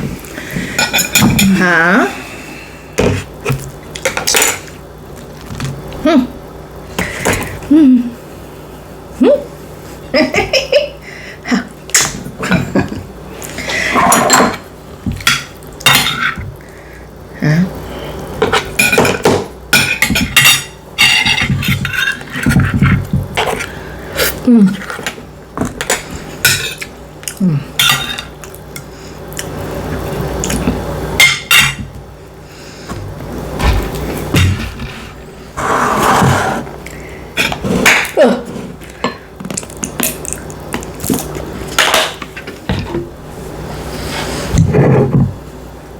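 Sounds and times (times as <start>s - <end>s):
close eating sounds: 22.2s - 31.1s, 36.2s - 41.8s.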